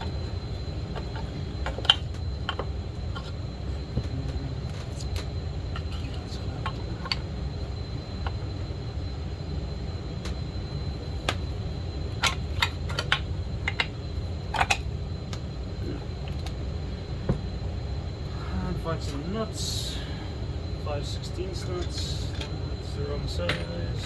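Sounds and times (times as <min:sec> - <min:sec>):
steady low rumble: 0:00.0 - 0:24.0
tools and parts clicking and clinking: 0:12.2 - 0:13.9, 0:14.5 - 0:14.8.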